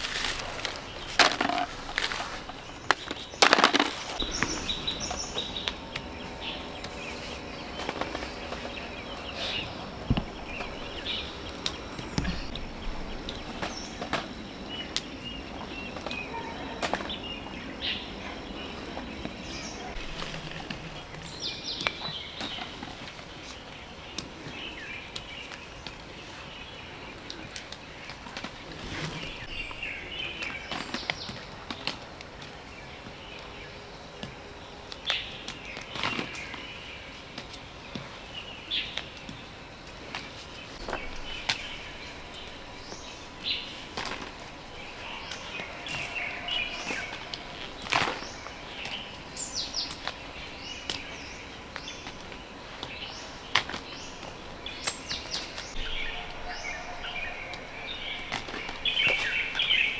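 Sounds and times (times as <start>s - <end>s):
bird chirps: 0.1s - 25.6s, 40.6s - 59.9s.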